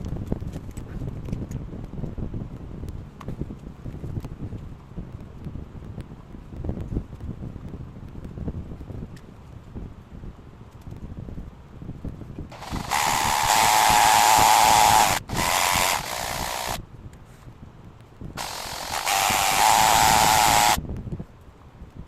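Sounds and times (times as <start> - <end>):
power tool whining: 12.5 - 16.8, 18.4 - 20.8.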